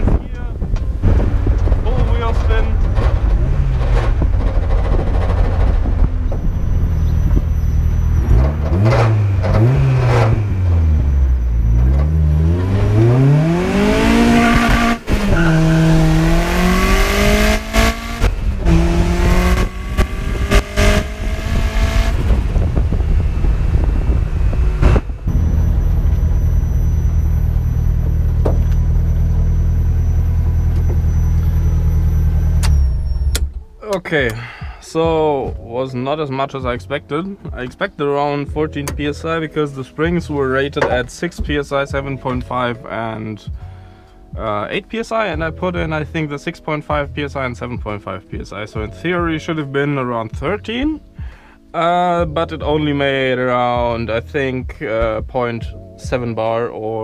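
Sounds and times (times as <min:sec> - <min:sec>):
car engine revving: 0:00.0 - 0:33.6.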